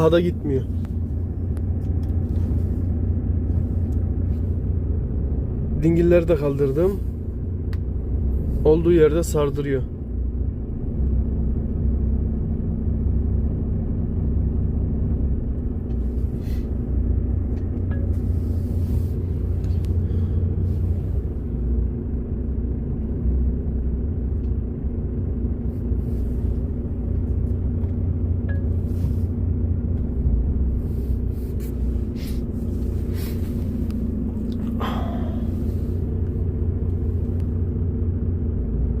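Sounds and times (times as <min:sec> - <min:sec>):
diesel truck engine under load: 0:00.0 - 0:39.0.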